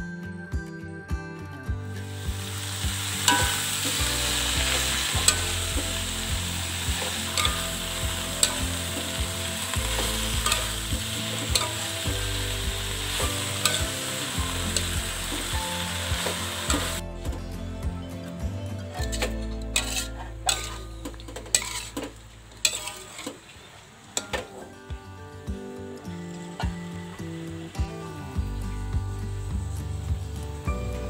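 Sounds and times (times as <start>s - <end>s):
food sizzling in hot oil: 2.0s - 17.0s, 19.2s - 24.4s.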